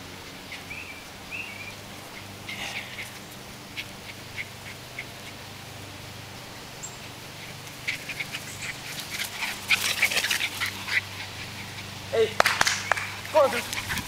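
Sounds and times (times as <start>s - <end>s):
steady low hum: 0.0s - 14.0s
rustling: 7.0s - 14.0s
dogs' claws clicking and scratching: 7.6s - 11.6s, 12.4s - 14.0s.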